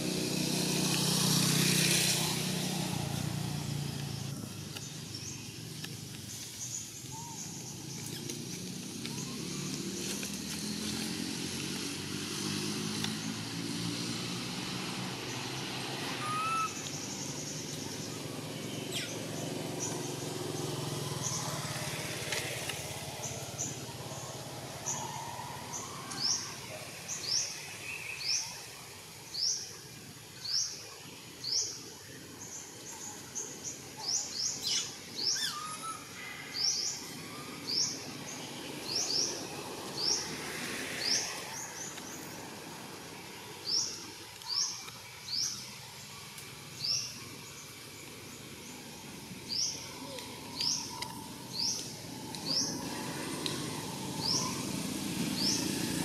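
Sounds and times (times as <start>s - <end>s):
outdoor background noise: 0.0s - 56.0s
bird chirping: 32.4s - 37.0s.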